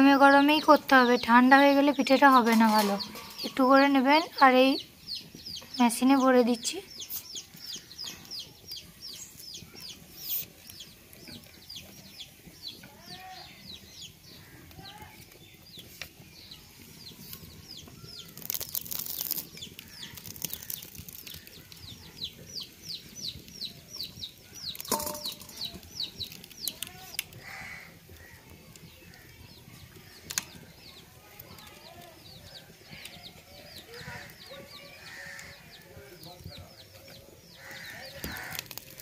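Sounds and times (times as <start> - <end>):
birds chirping: 0.0 - 39.0
rustling: 17.2 - 22.1.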